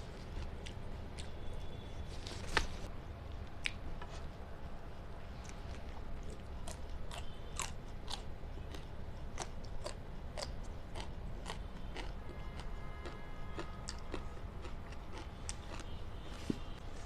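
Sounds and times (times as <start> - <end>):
person chewing crunchy food: 5.4 - 16.7.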